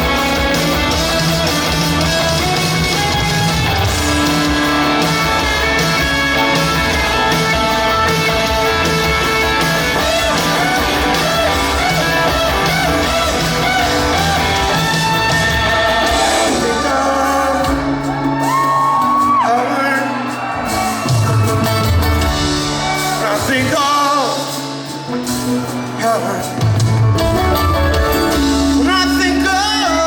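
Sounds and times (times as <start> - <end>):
live rock band playing: 0.0 - 30.0
person singing and shouting: 9.8 - 21.3.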